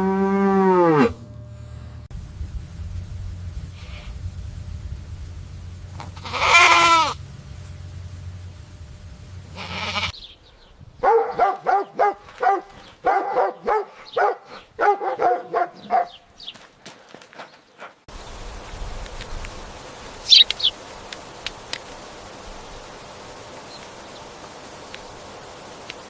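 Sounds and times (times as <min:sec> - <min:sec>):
farm animal bleating: 0:06.0 - 0:07.2, 0:09.5 - 0:10.2.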